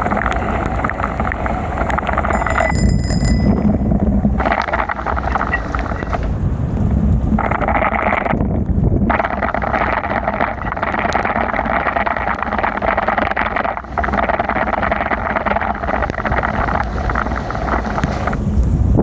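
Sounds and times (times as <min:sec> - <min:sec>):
rain and wind on microphone: 0:00.0 - 0:19.0
wet tyres on road: 0:04.3 - 0:18.8.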